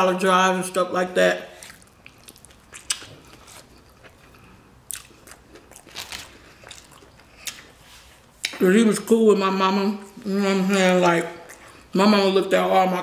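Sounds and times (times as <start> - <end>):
person chewing a sandwich: 1.5 - 8.6, 10.8 - 12.0
wet mouth smacks: 1.7 - 3.2.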